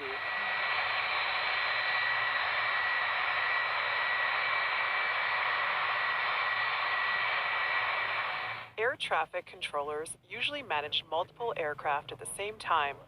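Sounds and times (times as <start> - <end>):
jet engine running: 0.0 - 8.8.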